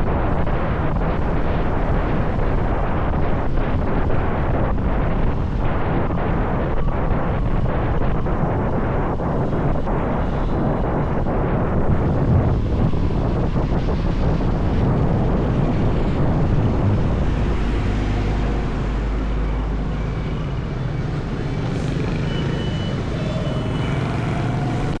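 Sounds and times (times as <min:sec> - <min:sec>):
wind rushing on microphone: 0:00.0 - 0:25.0.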